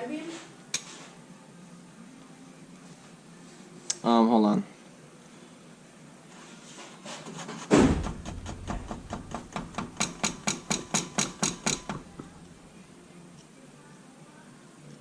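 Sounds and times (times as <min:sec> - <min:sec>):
heavy knock: 0:07.6 - 0:12.4
sharp metallic taps: 0:07.9 - 0:12.4.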